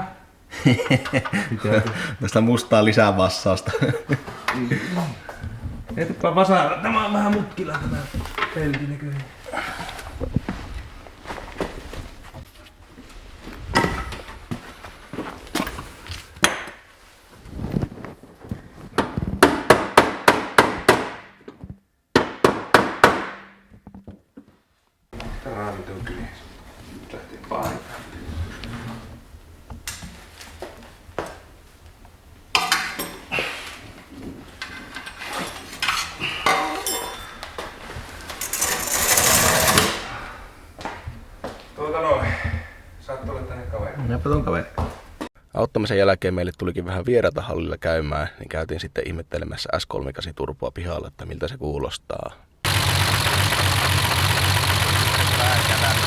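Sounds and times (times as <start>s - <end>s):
tools clinking against metal: 34.6s - 37.6s, 38.4s - 39.9s
ringing clink: 36.5s - 37.4s.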